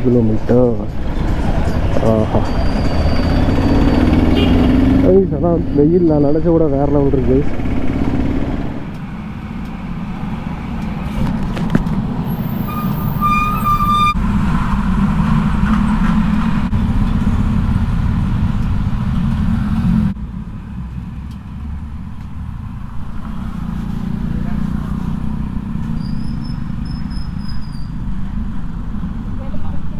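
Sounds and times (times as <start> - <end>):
motorcycle engine: 0.6 - 29.9
vehicle horn: 3.2 - 5.1, 12.6 - 14.2.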